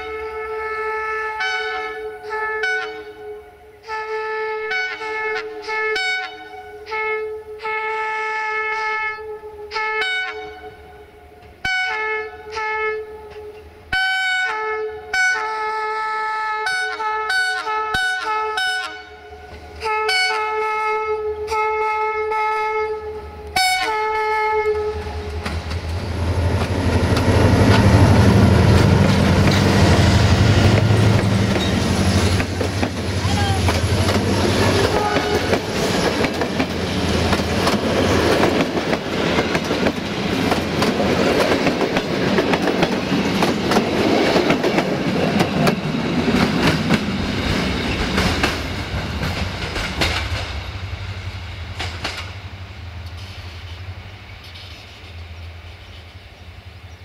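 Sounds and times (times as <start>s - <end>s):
locomotive multi-note horn: 0.0s - 25.4s, 33.2s - 36.0s
locomotive engine passing: 24.6s - 56.0s.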